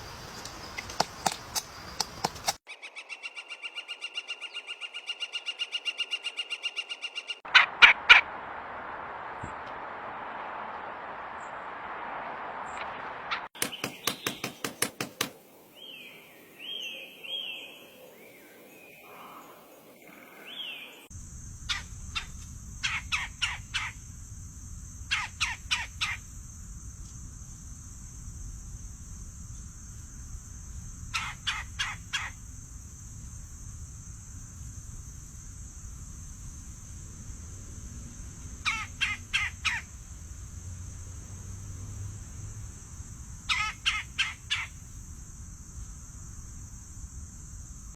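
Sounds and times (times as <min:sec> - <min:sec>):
birds calling: 0:00.0 - 0:08.2, 0:13.3 - 0:24.0, 0:31.1 - 0:32.4, 0:38.6 - 0:40.0, 0:43.4 - 0:45.0.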